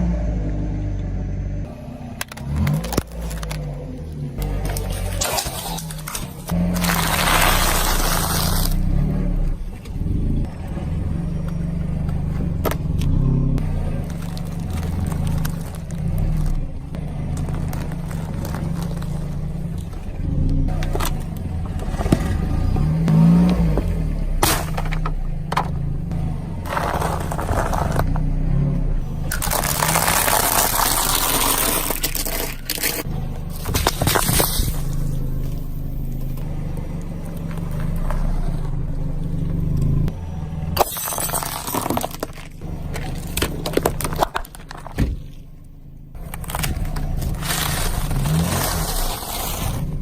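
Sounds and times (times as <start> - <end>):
brittle things being crushed: 4.4 - 8.8, 29.2 - 34.8, 46.2 - 49.8.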